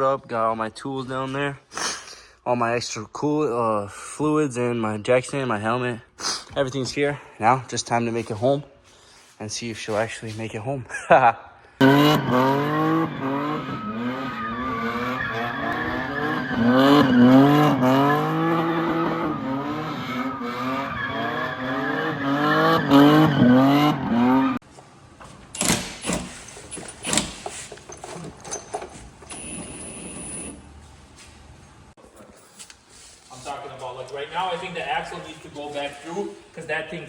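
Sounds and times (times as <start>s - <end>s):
car engine revving hard: 11.8s - 24.6s.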